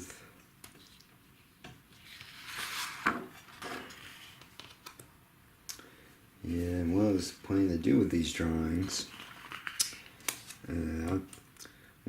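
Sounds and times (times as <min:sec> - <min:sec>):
paper rustling: 0:01.9 - 0:05.1, 0:06.5 - 0:11.4.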